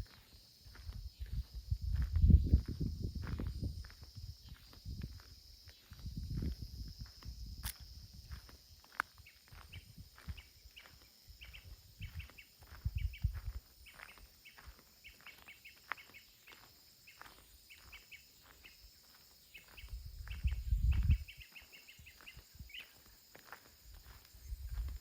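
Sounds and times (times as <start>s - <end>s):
small birds chirping: 0.0s - 6.1s, 8.2s - 25.0s
wind buffeting microphone: 0.7s - 8.5s, 9.5s - 14.2s, 19.7s - 22.8s, 24.0s - 25.0s.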